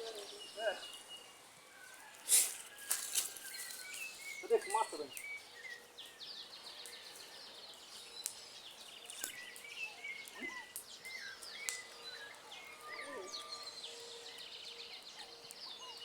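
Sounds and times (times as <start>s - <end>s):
birds chirping and trilling: 0.0s - 16.0s.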